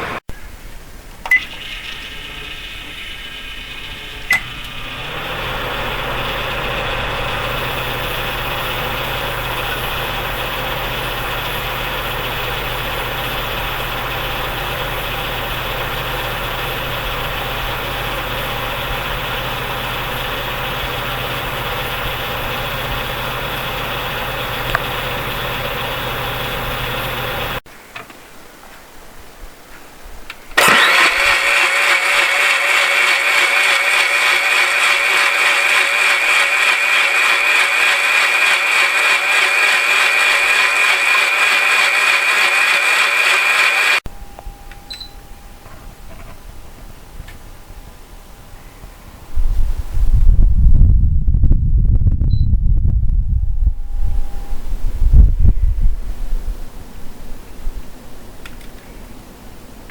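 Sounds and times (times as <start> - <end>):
electric motor humming and whining: 1.4 - 27.6, 30.6 - 44.9.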